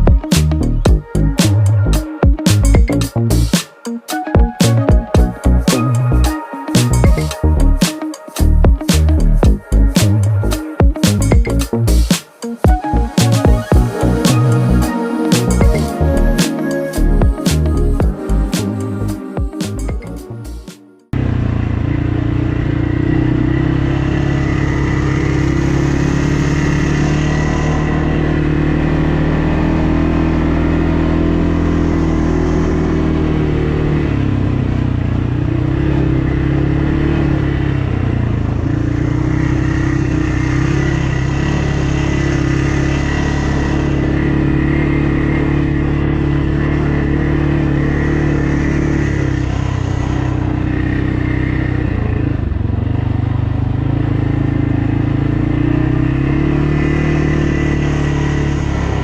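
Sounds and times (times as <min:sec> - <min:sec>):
atv engine running: 0:21.1 - 0:59.0.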